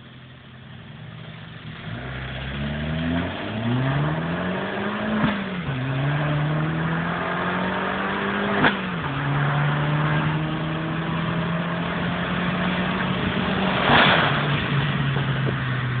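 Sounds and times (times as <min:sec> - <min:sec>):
car engine accelerating: 0:00.0 - 0:16.0
brief whoosh: 0:13.3 - 0:15.6.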